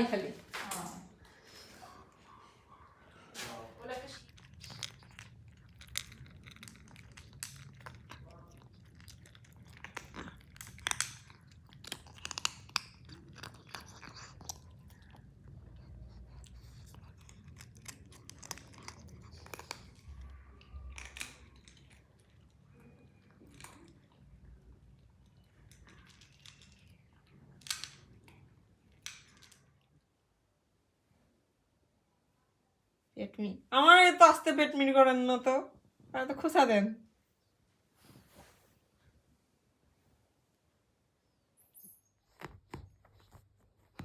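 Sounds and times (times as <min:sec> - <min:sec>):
cat crunching food: 0:03.4 - 0:30.0, 0:42.3 - 0:44.0.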